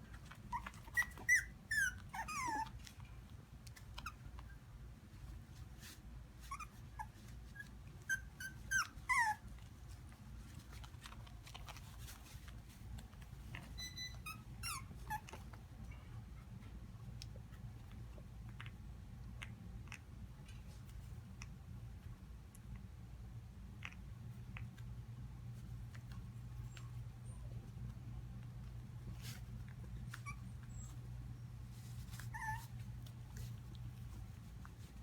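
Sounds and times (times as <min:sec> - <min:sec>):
puppies whimpering and yipping: 0:00.5 - 0:02.7, 0:06.5 - 0:09.4, 0:32.1 - 0:32.7.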